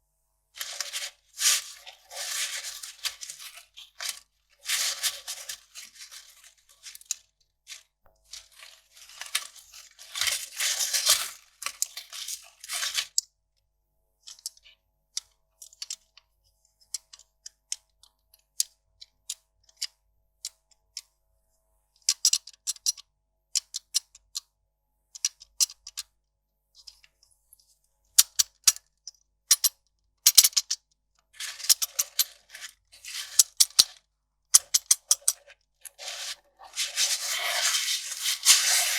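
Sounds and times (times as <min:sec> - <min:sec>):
paper rustling and crinkling: 0:00.6 - 0:13.2, 0:31.4 - 0:34.0, 0:34.6 - 0:38.9
paper ticking and crackling: 0:00.6 - 0:13.2, 0:31.4 - 0:34.0, 0:34.6 - 0:38.9.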